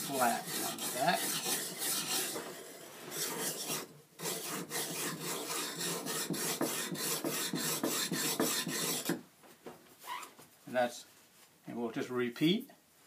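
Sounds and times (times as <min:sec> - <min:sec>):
plane iron grinding on sharpening stone: 0:00.0 - 0:09.2.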